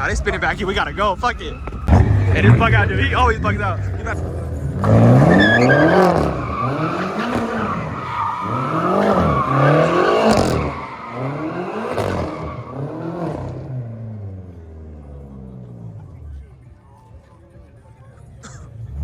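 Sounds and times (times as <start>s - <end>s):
car engine revving: 0.0s - 16.6s, 18.7s - 19.0s
tyres squealing: 0.6s - 13.3s.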